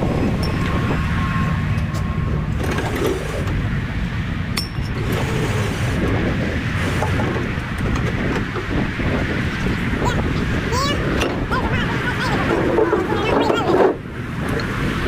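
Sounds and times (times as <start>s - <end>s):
semi truck engine and road rumble: 0.0s - 15.0s
sharp metallic clinks: 0.4s - 0.8s, 4.6s - 5.2s.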